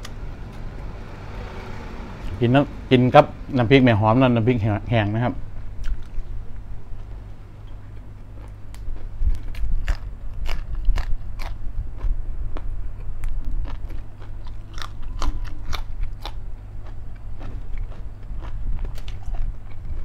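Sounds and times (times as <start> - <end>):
man chewing crunchy food: 5.8 - 6.4, 7.0 - 20.0.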